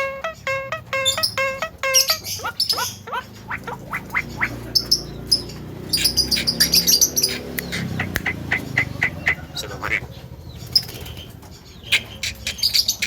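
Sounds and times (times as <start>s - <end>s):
bird whistled notes: 0.0s - 5.0s
bird raspy squawks: 0.0s - 11.1s, 11.8s - 13.0s.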